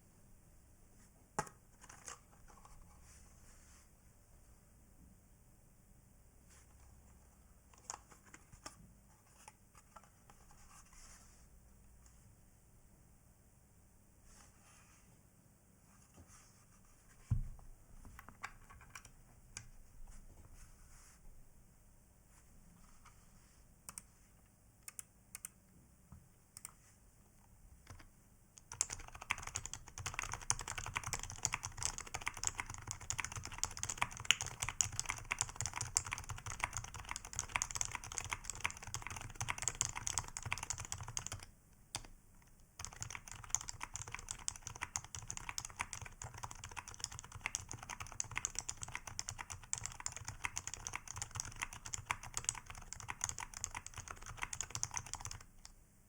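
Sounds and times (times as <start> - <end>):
keyboard typing: 18.2 - 19.7, 27.8 - 42.1, 42.8 - 55.7.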